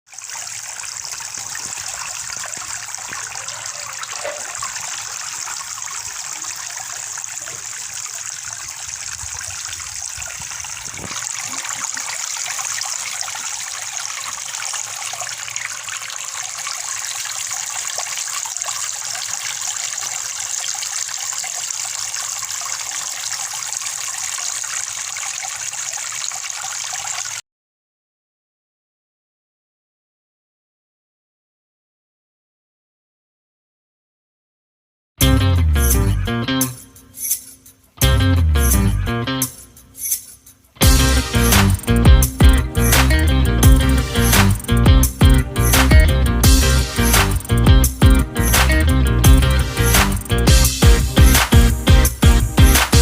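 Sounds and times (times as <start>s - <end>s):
water trickling and splashing: 0.1s - 27.4s, 39.4s - 53.0s.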